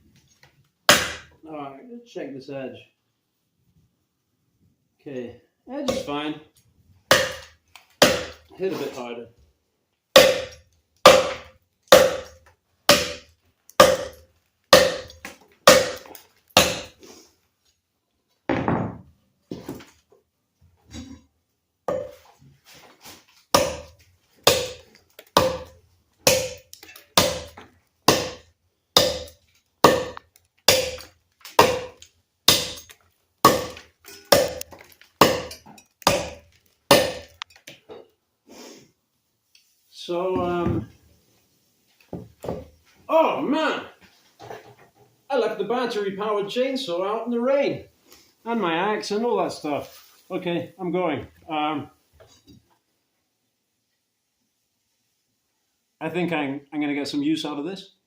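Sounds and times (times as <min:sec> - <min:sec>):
knife chopping wood: 0:00.9 - 0:01.3, 0:07.1 - 0:08.4, 0:10.2 - 0:13.2, 0:13.8 - 0:14.2, 0:14.8 - 0:17.0, 0:23.6 - 0:24.8, 0:25.4 - 0:32.8, 0:33.4 - 0:37.4.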